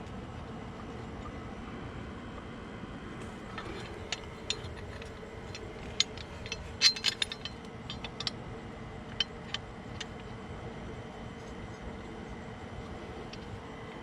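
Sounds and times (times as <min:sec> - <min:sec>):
steady background hum: 0:00.0 - 0:14.0
metal bolts and tools clinking: 0:03.3 - 0:08.4, 0:12.8 - 0:14.0.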